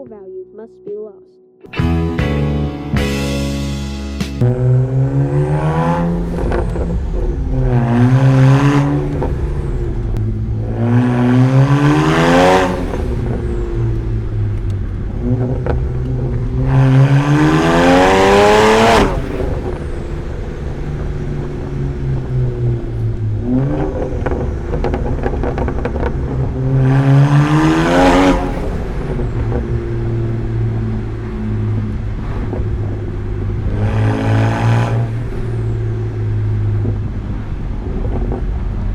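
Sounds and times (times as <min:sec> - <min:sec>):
car engine idling and revving: 0:02.9 - 0:38.9.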